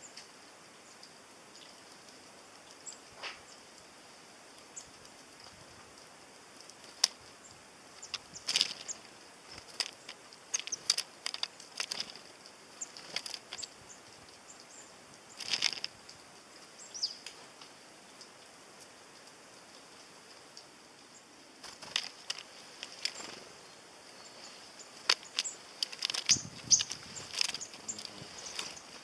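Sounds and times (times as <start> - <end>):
birds pecking at seeds: 0.9 - 29.0
wings fluttering: 4.6 - 14.4, 15.2 - 16.1, 21.6 - 29.0
thin high bird calls: 6.0 - 17.4, 21.0 - 29.0.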